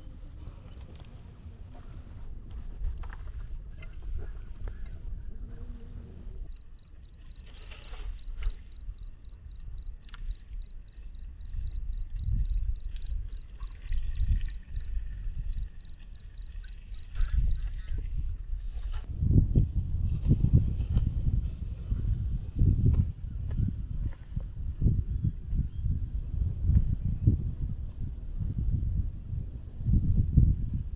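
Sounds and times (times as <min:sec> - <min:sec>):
animal high chirps: 0:06.5 - 0:14.9, 0:15.5 - 0:17.7.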